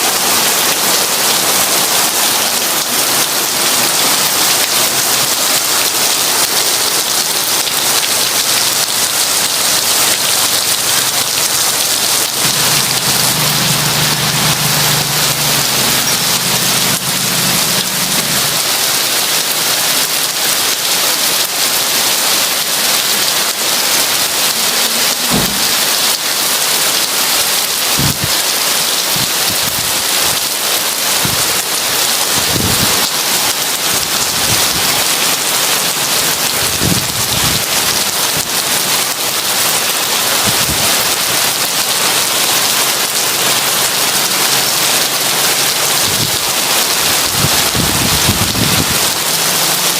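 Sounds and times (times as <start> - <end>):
heavy rain hissing: 0.0 - 49.9
low thuds: 25.3 - 25.8.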